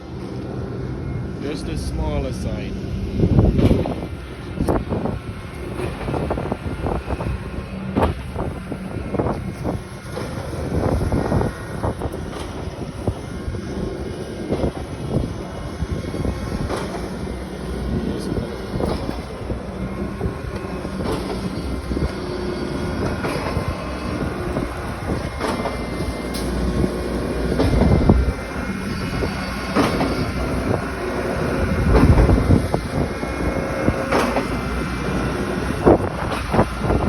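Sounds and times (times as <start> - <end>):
heavy machinery rumbling: 0.0 - 37.0
metal clanks and knocks: 28.8 - 30.9.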